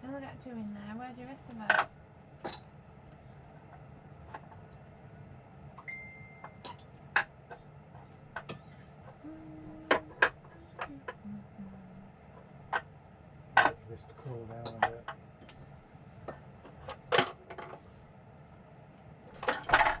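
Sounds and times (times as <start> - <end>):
dishes and utensils clinking: 14.6 - 15.0, 19.4 - 20.0.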